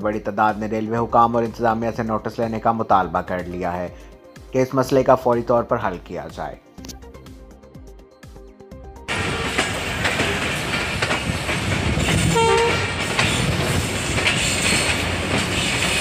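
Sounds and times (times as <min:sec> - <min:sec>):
train rumbling: 0:09.1 - 0:16.0
wheels clicking over rail joints: 0:09.1 - 0:16.0
train horn blast: 0:12.0 - 0:13.5.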